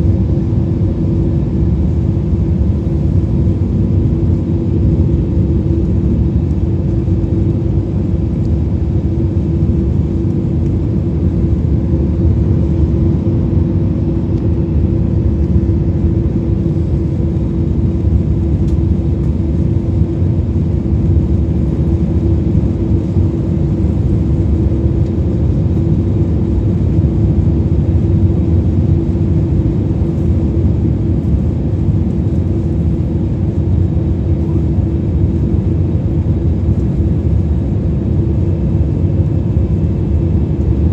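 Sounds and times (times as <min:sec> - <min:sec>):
constant low hum: 0:00.0 - 0:40.9
jet engines and airflow rumble: 0:00.0 - 0:40.9.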